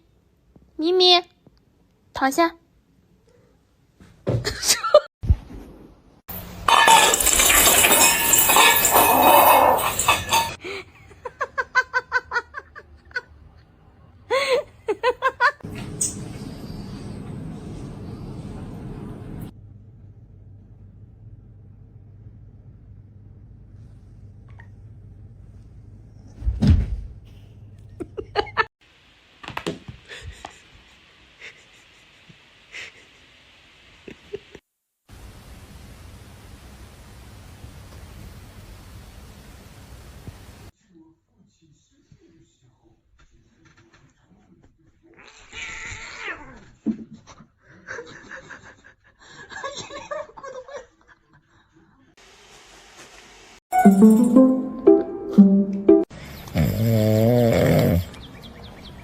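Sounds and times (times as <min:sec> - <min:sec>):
person laughing: 0:28.0 - 0:28.7.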